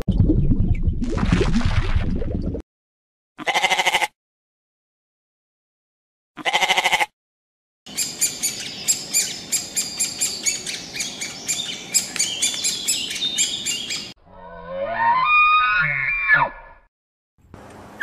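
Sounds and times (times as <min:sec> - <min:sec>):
goat bleating: 0:03.4 - 0:04.1, 0:06.4 - 0:07.1
birds chirping: 0:07.9 - 0:14.2.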